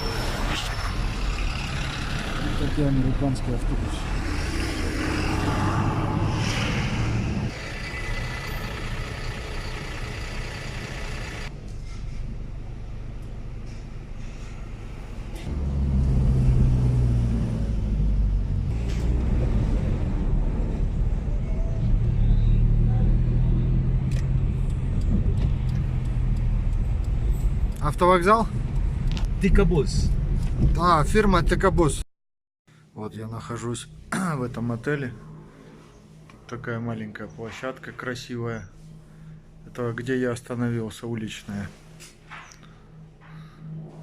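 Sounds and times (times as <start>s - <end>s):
bus and traffic engines rumbling: 0.0s - 31.8s.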